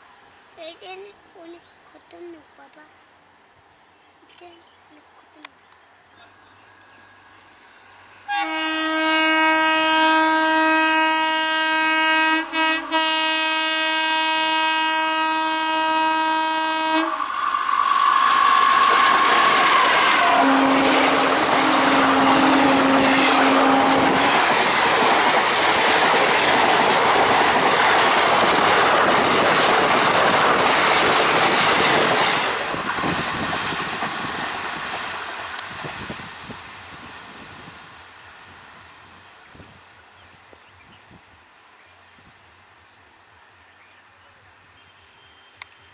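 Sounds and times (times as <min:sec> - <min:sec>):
train horn blasts: 0:08.3 - 0:17.4, 0:18.2 - 0:24.4
train wheels rattling on rails: 0:17.0 - 0:37.8.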